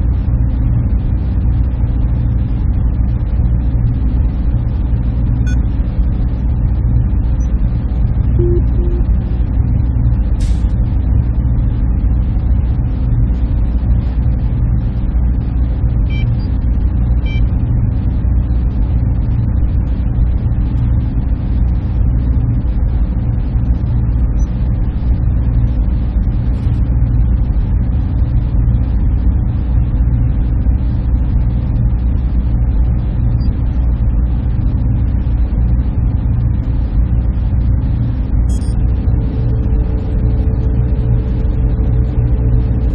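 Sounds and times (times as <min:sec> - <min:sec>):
server machinery humming: 0:03.5 - 0:12.4, 0:36.2 - 0:42.9.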